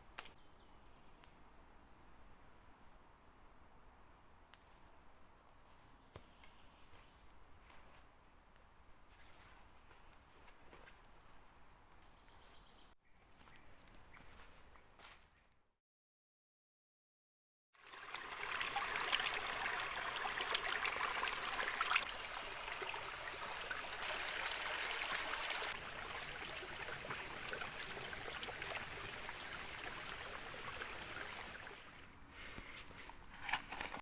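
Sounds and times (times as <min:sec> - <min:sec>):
water rushing: 0:17.8 - 0:32.0
small sharp ticks and drips: 0:17.8 - 0:32.7.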